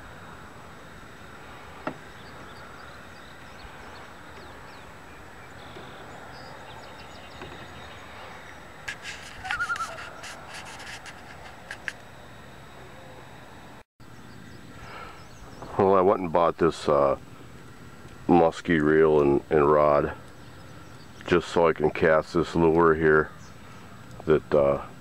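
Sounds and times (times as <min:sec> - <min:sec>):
outdoor hiss: 0:00.0 - 0:12.9, 0:14.6 - 0:25.0
faint bird calls: 0:01.7 - 0:12.0.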